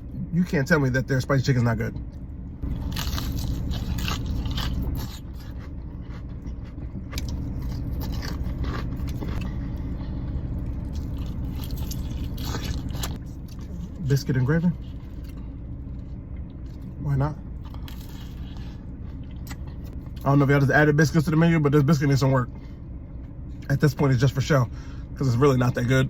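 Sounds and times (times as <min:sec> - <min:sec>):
low rumble: 0:00.0 - 0:26.0
person chewing crispy chicken: 0:02.6 - 0:17.0, 0:17.6 - 0:20.2.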